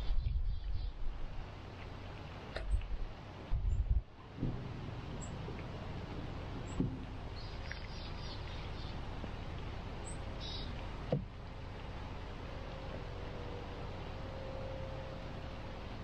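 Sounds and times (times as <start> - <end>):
outdoor background noise: 0.0 - 16.0
faint bird chirps: 10.0 - 10.8.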